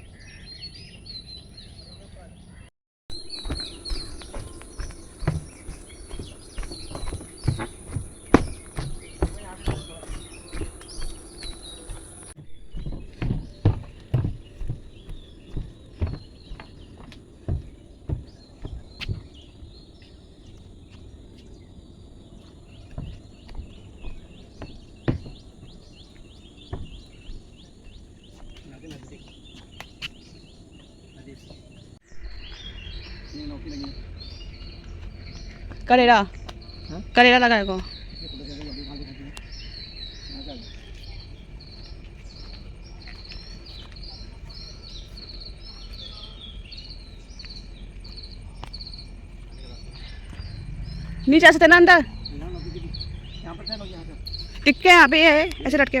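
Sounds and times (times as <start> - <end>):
birds chirping: 0.0 - 56.0
dull low thumps: 3.1 - 20.0, 32.1 - 56.0.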